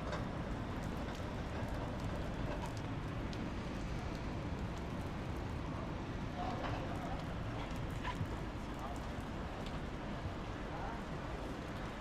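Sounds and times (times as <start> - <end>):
steady rain: 0.0 - 12.0
raindrops ticking: 0.1 - 3.4.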